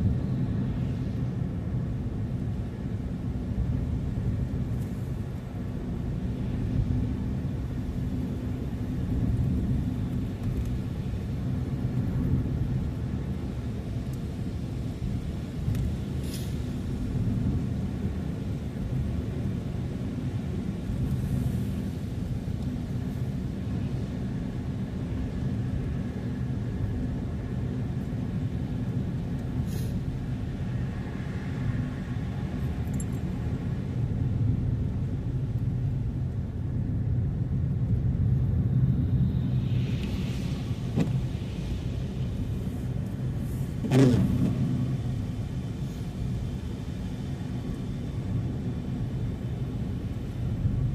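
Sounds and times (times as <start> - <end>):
car driving rumble: 27.4 - 50.9.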